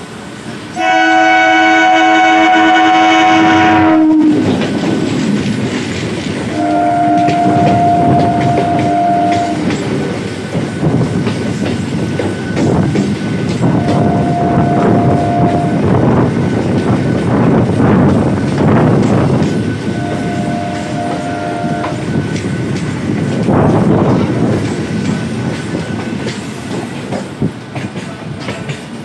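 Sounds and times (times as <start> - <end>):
train rumble and wheel clatter: 0.0 - 29.0
train horn blast: 0.8 - 4.6, 6.5 - 9.8, 13.7 - 15.8, 19.9 - 22.2.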